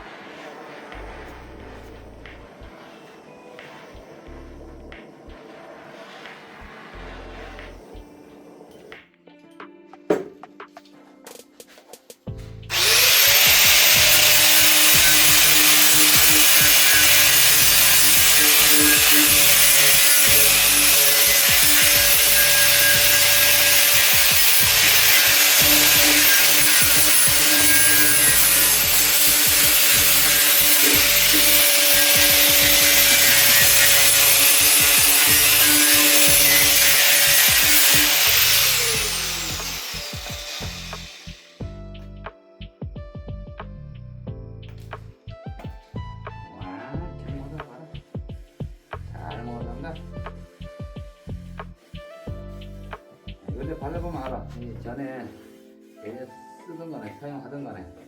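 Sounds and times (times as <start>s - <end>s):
electric power tool motor whine: 12.7s - 41.6s.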